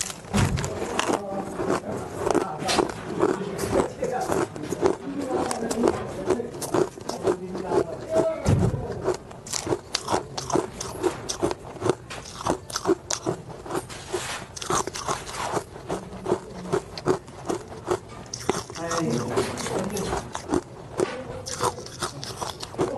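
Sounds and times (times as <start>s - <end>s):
chewing crunchy ice: 0.0s - 22.9s
low thump: 0.3s - 0.7s, 8.4s - 8.9s.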